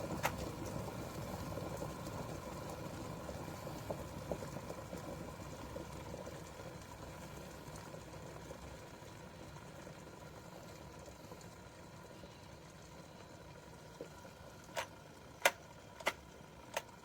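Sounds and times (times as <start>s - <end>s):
water boiling in kettle: 0.0s - 17.0s.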